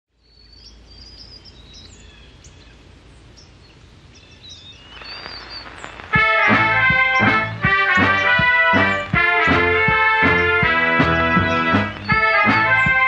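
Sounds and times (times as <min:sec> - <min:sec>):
birds chirping: 0:00.1 - 0:13.0
outdoor ambience: 0:00.1 - 0:13.0
loud music: 0:06.1 - 0:13.0.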